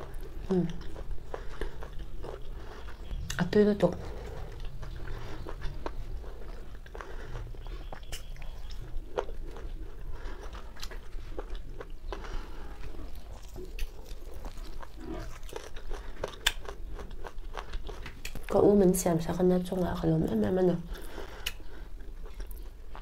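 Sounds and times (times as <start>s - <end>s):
person chewing and crunching: 0.0s - 18.8s, 20.9s - 23.0s.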